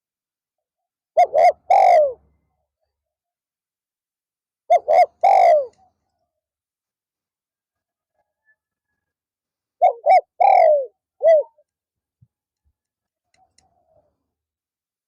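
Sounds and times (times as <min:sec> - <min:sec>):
dove cooing: 0:01.2 - 0:02.2, 0:04.7 - 0:05.9, 0:09.8 - 0:11.6.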